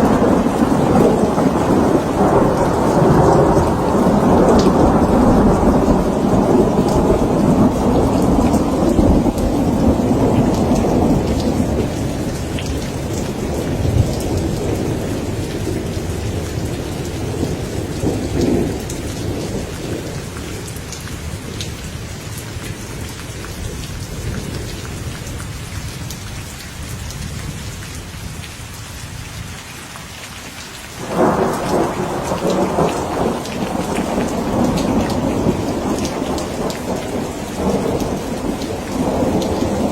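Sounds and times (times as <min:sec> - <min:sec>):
sudden thunderclap: 0:00.0 - 0:12.1, 0:31.0 - 0:39.9
rolling thunder: 0:00.0 - 0:21.7, 0:31.0 - 0:39.9
steady rain: 0:00.0 - 0:39.9.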